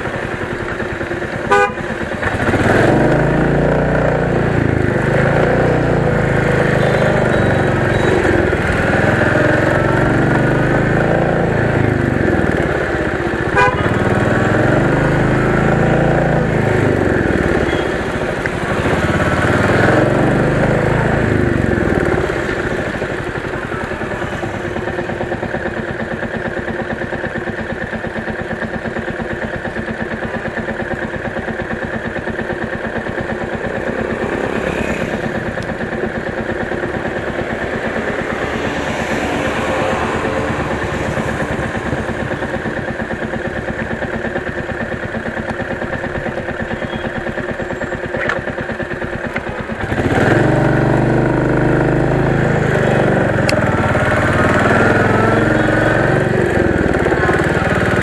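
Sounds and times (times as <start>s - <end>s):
motorcycle engine running: 0.0s - 58.0s
horn beep: 1.4s - 2.0s, 6.6s - 8.6s, 13.5s - 14.1s, 17.4s - 18.9s, 46.6s - 47.4s.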